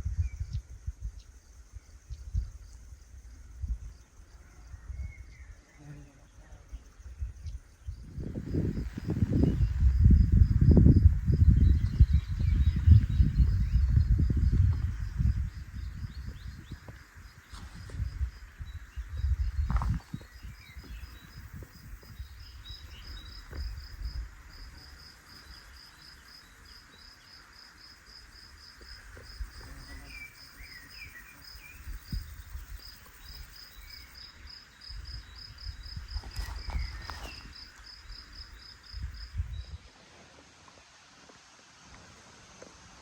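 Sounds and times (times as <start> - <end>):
cricket-like insect chirping: 0.0 - 43.0
low rumbles and thumps: 17.8 - 22.3.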